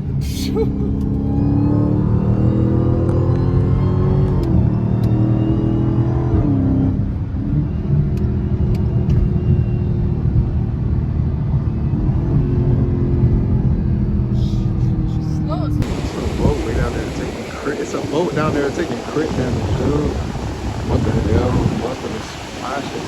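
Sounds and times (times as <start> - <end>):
car engine running: 14.3 - 23.0.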